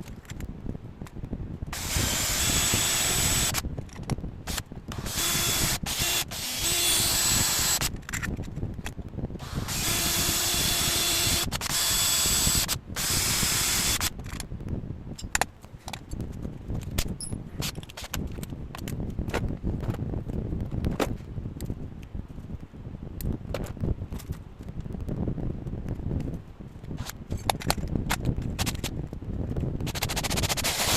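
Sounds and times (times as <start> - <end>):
handheld power tool whining: 1.7 - 3.6, 4.5 - 8.1, 9.4 - 14.2, 29.9 - 30.9.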